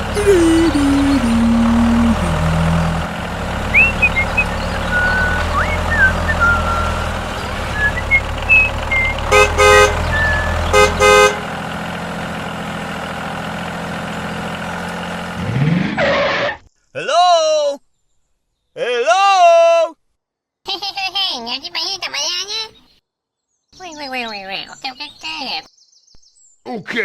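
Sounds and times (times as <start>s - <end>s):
motor humming: 0.0s - 12.4s
vehicle horn toots: 9.1s - 11.6s.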